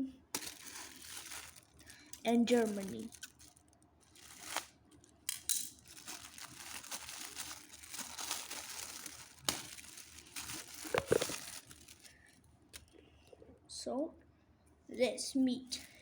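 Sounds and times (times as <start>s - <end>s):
packaging crinkling and tearing: 0.4s - 12.2s.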